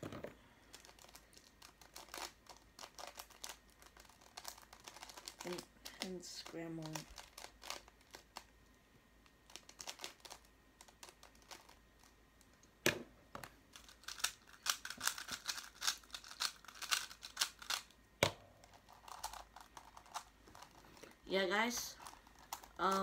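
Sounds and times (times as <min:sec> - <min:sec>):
puzzle cube layers clacking: 0:12.9 - 0:20.8.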